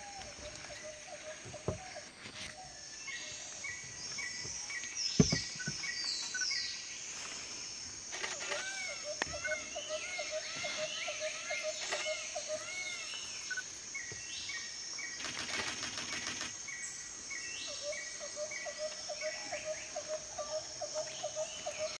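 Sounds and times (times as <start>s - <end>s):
steady high-pitched hiss: 0.0s - 22.0s
birds calling: 8.1s - 22.0s
rapid bird rattle: 15.1s - 16.6s.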